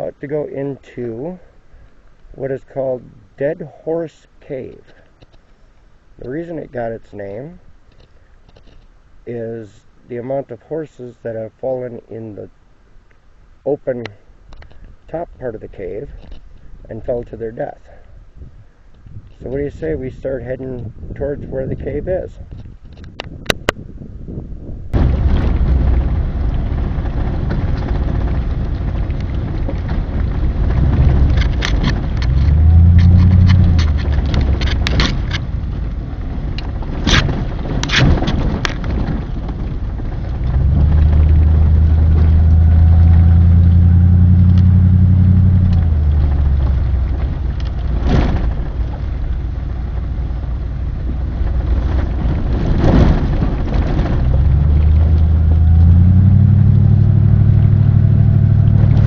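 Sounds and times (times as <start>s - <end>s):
road rumble: 0.0s - 59.0s
knocks and rattles: 25.0s - 44.0s, 51.4s - 56.4s
vehicle engine accelerating: 25.0s - 59.0s.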